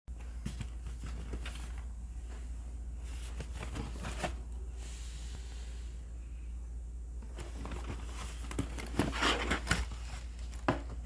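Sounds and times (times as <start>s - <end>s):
steady low hum: 0.1s - 11.0s
paper rustling: 7.3s - 10.8s.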